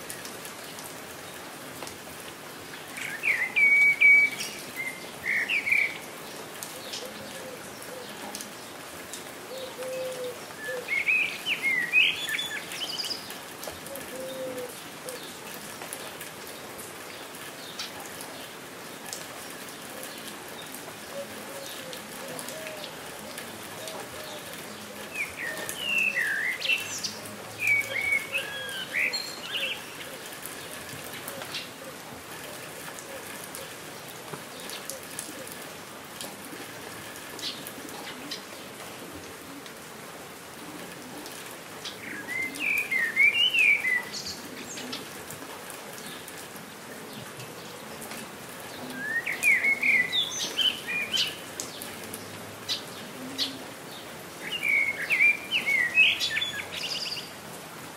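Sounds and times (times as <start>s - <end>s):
steady rain falling: 0.0s - 57.9s
songbird singing: 2.7s - 8.7s, 9.5s - 15.4s, 20.0s - 31.8s, 41.8s - 45.2s, 48.6s - 57.4s.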